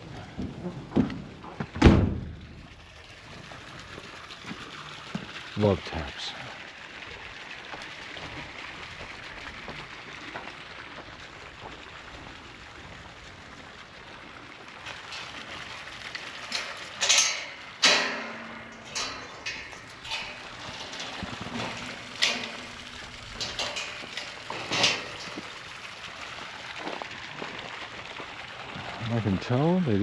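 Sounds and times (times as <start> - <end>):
knocks and scrapes: 16.2 - 25.6.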